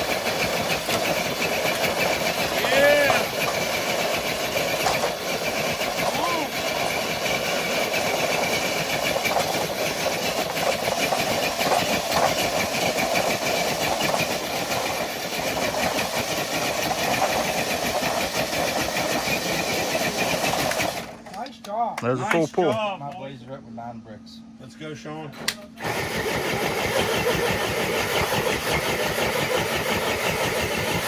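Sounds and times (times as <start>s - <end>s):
toy truck motor whining under load: 0.0s - 21.2s, 25.8s - 31.0s.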